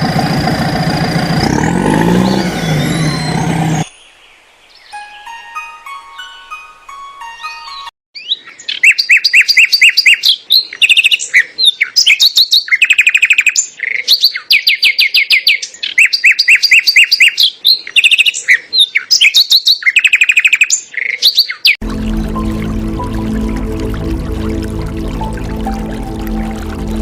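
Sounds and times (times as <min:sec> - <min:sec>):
songbird trilling: 0:08.2 - 0:21.8.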